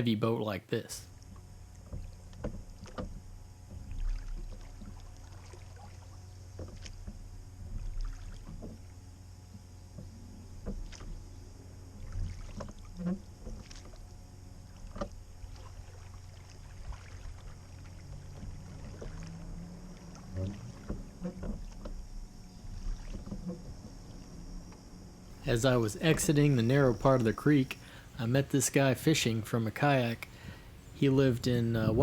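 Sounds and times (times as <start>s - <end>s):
oar strokes in water: 1.2s - 28.0s
oars knocking: 25.4s - 32.0s.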